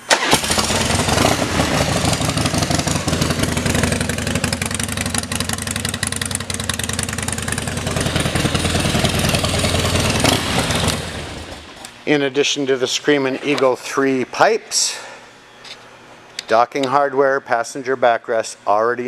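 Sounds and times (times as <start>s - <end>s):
motorcycle engine idling: 0.4s - 11.8s.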